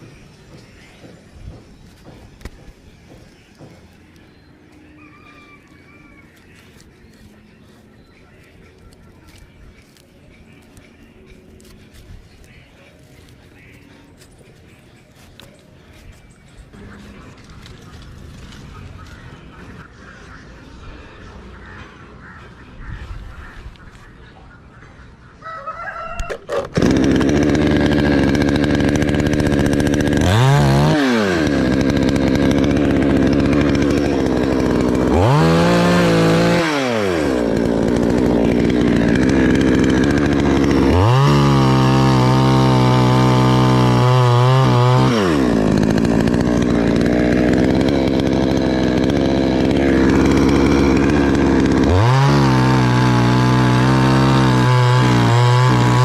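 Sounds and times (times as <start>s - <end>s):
chainsaw idling and revving: 0.2s - 4.2s, 11.6s - 19.7s, 26.2s - 56.0s.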